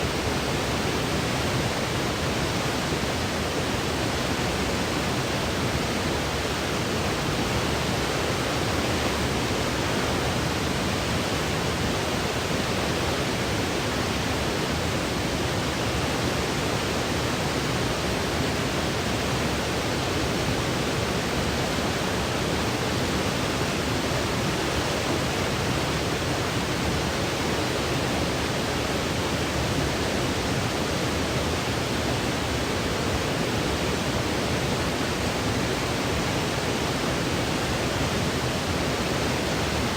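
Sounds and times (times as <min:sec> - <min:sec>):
electronic white noise hiss: 0:00.0 - 0:39.9.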